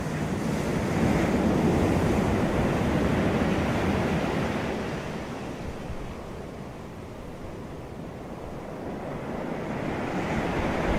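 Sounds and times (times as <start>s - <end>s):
sea waves breaking: 8.7s - 10.9s.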